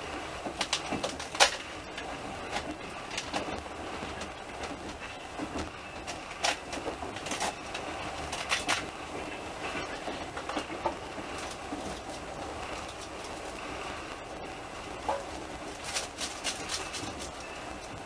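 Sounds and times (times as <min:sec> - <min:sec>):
train rumble inside carriage: 0:00.0 - 0:18.0
sharp clicks and rattling knocks: 0:00.4 - 0:09.0.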